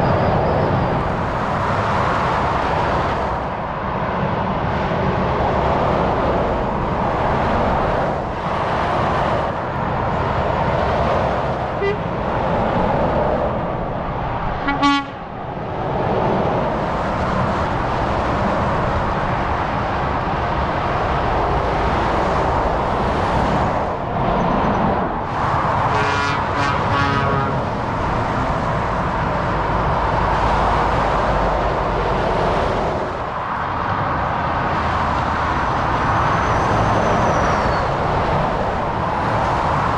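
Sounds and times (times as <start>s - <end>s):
motorway traffic rushing past: 0.0s - 39.9s
vehicle horn toot: 11.8s - 12.0s, 14.6s - 15.2s, 25.9s - 27.6s.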